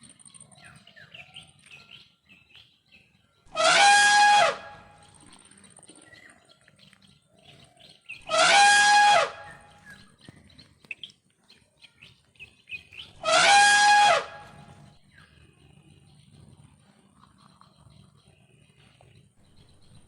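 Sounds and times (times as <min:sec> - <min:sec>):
bird calling loudly: 0:03.5 - 0:05.3, 0:08.1 - 0:10.0, 0:13.0 - 0:14.8
faint bird chirping: 0:09.3 - 0:13.3, 0:14.3 - 0:20.0.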